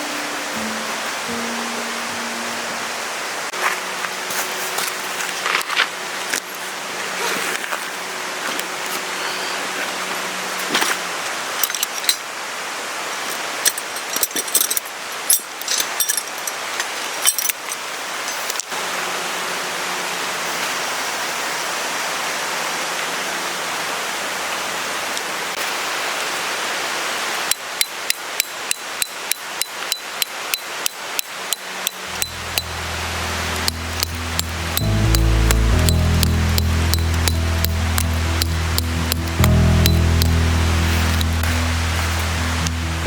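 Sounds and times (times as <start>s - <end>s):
metallic clinks: 13.3s - 18.5s
steady rushing noise: 30.4s - 43.0s.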